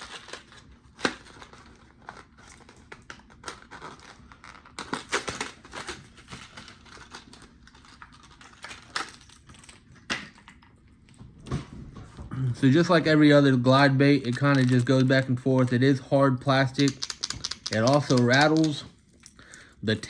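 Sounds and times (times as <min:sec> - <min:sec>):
plastic packaging crinkling: 0:00.0 - 0:10.7, 0:12.7 - 0:19.6
sharp clicks and taps: 0:16.7 - 0:18.9.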